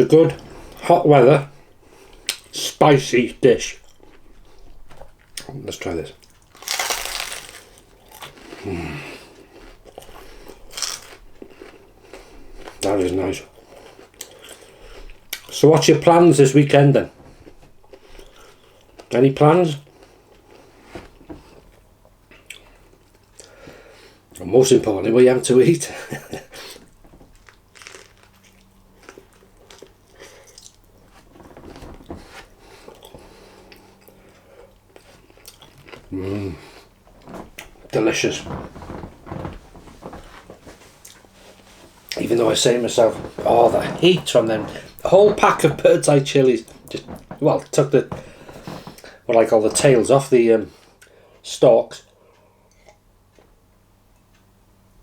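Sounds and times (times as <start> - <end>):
chewing: 6.2 - 8.7, 9.3 - 12.9, 13.6 - 15.6, 26.8 - 37.7
crunch of biting into wrap: 6.2 - 8.8, 9.6 - 11.7, 27.4 - 30.8
faint crunches: 6.2 - 15.6, 26.7 - 50.4.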